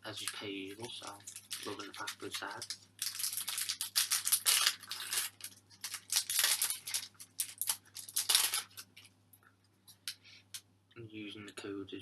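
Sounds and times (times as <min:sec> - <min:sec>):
foil wrapper crinkling: 0:00.1 - 0:09.1.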